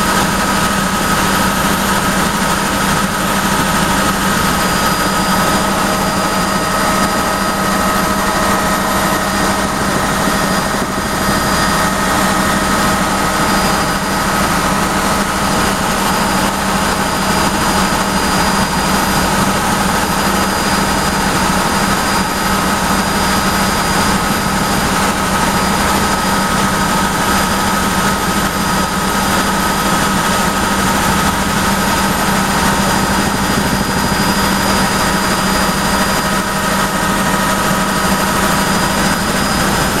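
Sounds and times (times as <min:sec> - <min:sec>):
helicopter engine and rotor drone: 0:00.0 - 0:40.0.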